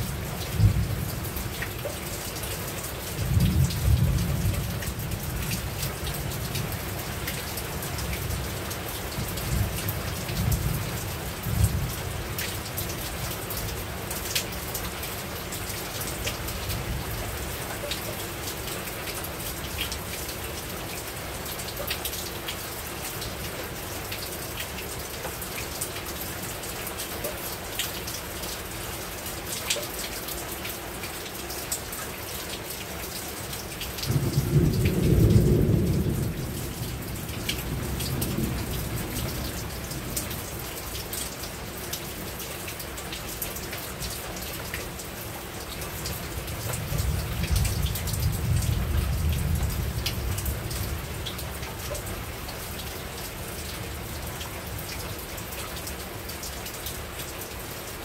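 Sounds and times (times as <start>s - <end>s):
rain falling on a roof: 0.0s - 58.0s
low thunder rumbles: 0.5s - 1.1s, 34.1s - 40.5s, 46.8s - 51.6s.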